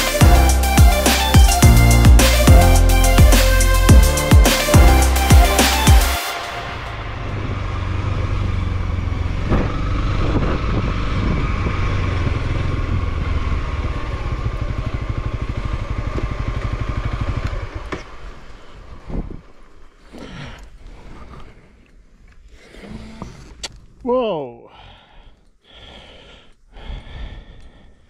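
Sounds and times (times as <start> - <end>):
motorcycle engine running: 0.0 - 19.7.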